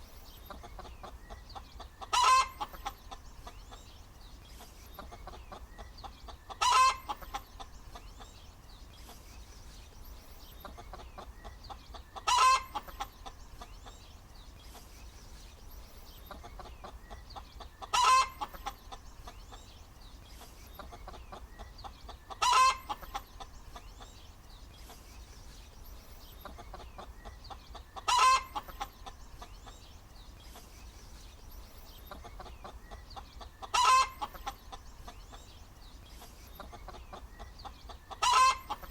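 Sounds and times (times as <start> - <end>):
faint hen clucks: 0.0 - 38.9
hen cackling: 0.5 - 3.2, 5.0 - 7.7, 10.7 - 13.3, 16.4 - 19.0, 20.8 - 23.8, 26.5 - 29.1, 32.1 - 35.2, 36.7 - 38.9.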